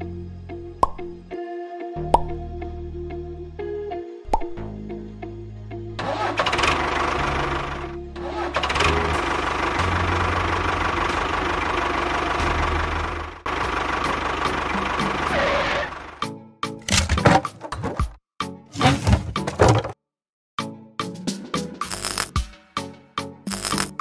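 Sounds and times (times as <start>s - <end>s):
background music: 0.0s - 11.4s, 20.6s - 24.0s
tractor engine running: 6.0s - 18.1s.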